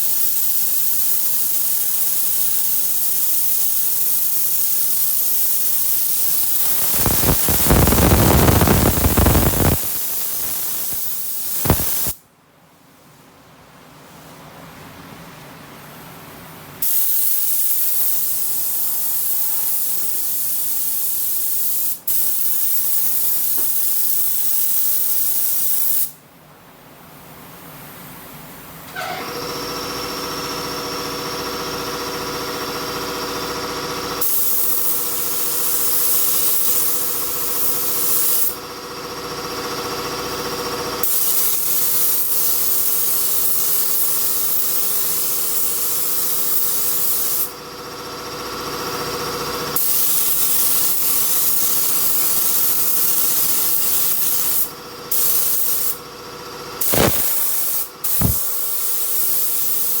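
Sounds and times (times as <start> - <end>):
spray gun air hiss: 0.2 - 12.2, 56.8 - 60.0
machine hum: 6.6 - 11.0
sharp clicks: 11.6 - 12.1, 56.9 - 57.5.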